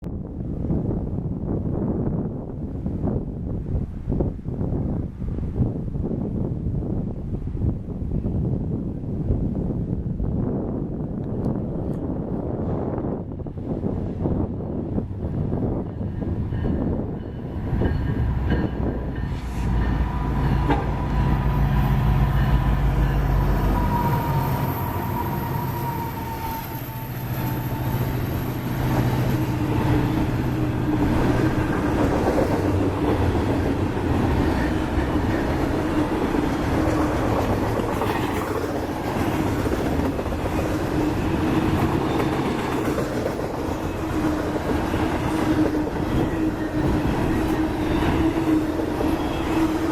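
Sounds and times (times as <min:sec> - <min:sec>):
diesel locomotive rumble: 0:09.8 - 0:49.9
train wheels clattering on rails: 0:15.6 - 0:49.9.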